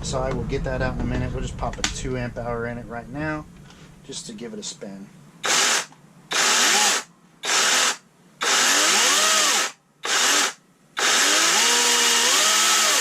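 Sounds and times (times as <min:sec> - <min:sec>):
chainsaw motor whirring in bursts: 0:05.4 - 0:13.0.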